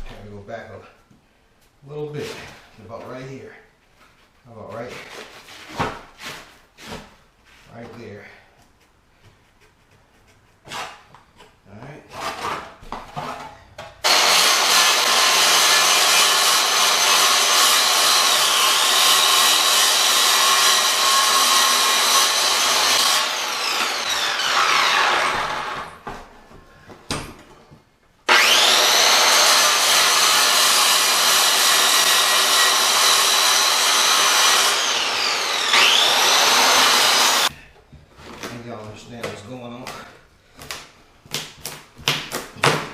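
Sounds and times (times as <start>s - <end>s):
circular saw cutting wood: 14.0s - 26.0s, 28.3s - 37.5s
saw blade winding down whine: 14.1s - 25.8s, 28.3s - 37.5s.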